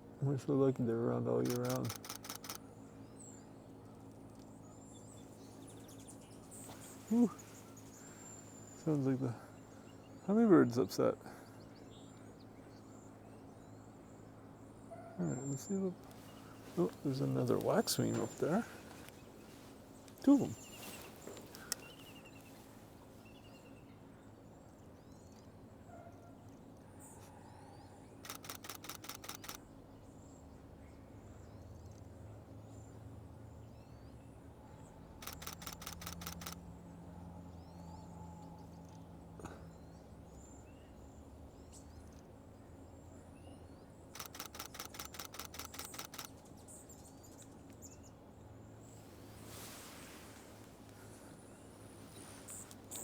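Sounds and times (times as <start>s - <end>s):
faint bird chirps: 1.3s - 32.1s, 33.7s - 36.6s, 37.5s - 53.0s
camera shutter bursts: 1.4s - 2.6s, 28.2s - 29.6s, 35.2s - 36.6s, 44.2s - 46.4s.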